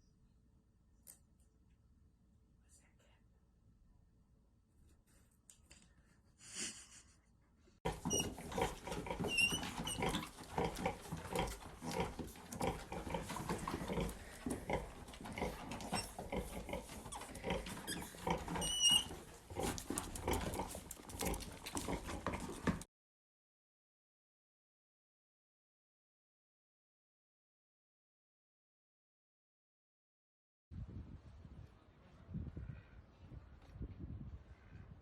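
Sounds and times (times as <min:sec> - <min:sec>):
short high squeaks: 0:07.9 - 0:08.5, 0:09.1 - 0:10.3, 0:17.1 - 0:19.2
animal noises: 0:07.9 - 0:22.9.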